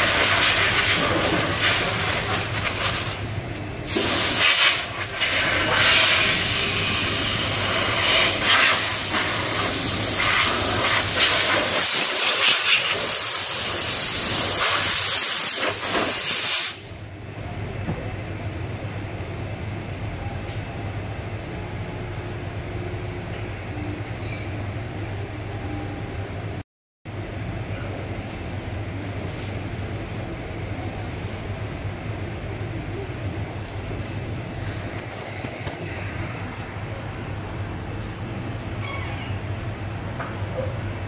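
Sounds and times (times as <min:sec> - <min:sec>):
shop equipment hum: 0:00.0 - 0:41.0
pneumatic tool air hissing: 0:03.9 - 0:16.9.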